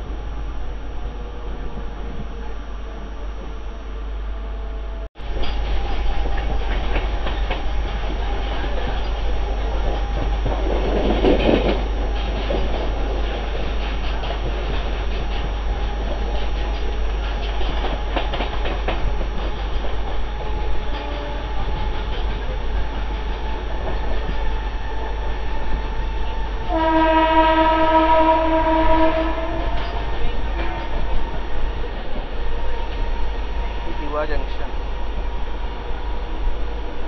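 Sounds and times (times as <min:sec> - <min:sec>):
train rumbling at speed: 0:00.0 - 0:37.0
train horn: 0:00.9 - 0:05.1, 0:20.4 - 0:21.9, 0:26.2 - 0:31.4
train wheel clicks: 0:05.3 - 0:26.8, 0:29.5 - 0:33.3.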